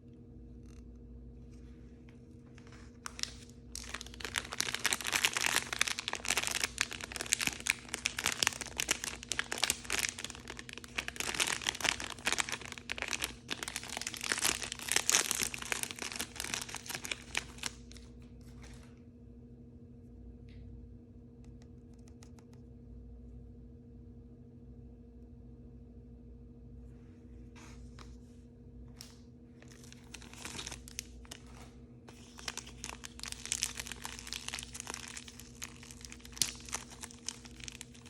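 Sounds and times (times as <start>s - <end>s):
plastic packaging crinkling: 2.4s - 18.9s, 29.0s - 38.0s.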